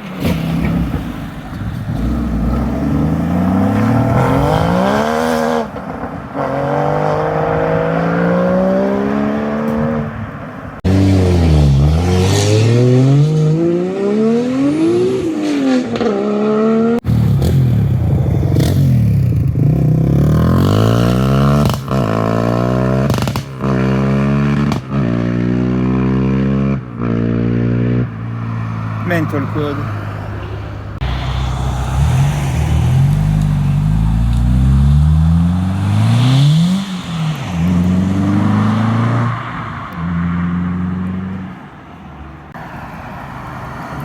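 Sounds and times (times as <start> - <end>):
car engines revving: 0.0 - 44.0.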